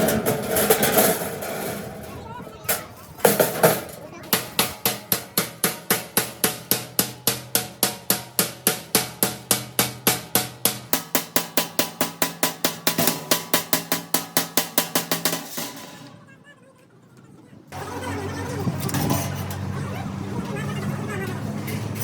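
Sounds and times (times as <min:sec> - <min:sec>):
hammer striking sheet steel: 0:00.0 - 0:16.2.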